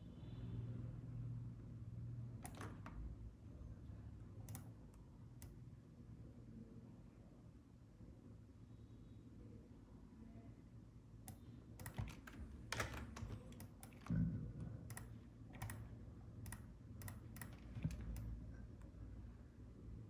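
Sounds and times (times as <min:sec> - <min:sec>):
faint low hum: 0:00.0 - 0:20.0
computer keys typing: 0:04.4 - 0:04.8, 0:11.3 - 0:14.1, 0:14.9 - 0:18.3.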